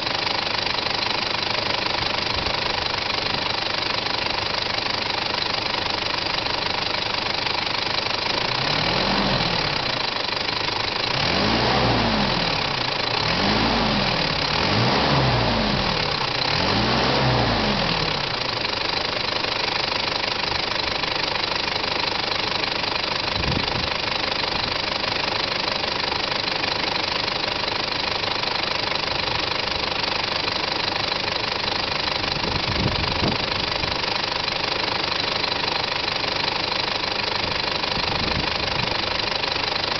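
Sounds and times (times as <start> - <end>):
diesel engine idling with clatter: 0.0 - 39.9
engine revving: 8.5 - 10.0, 11.0 - 18.4.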